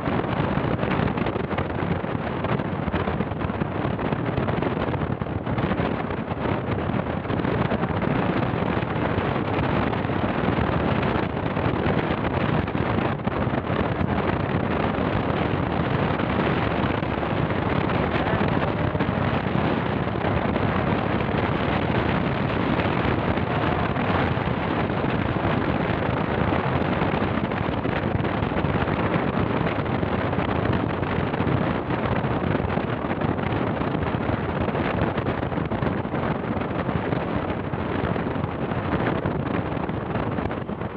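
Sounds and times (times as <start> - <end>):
wind on microphone: 0.0 - 40.9
vehicle running: 14.7 - 27.8.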